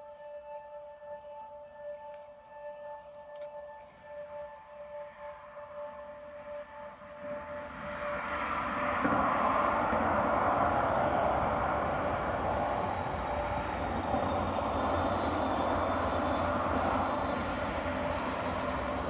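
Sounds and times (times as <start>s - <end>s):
faint warning tones: 0.0s - 19.0s
train rushing through tunnel: 4.9s - 19.0s.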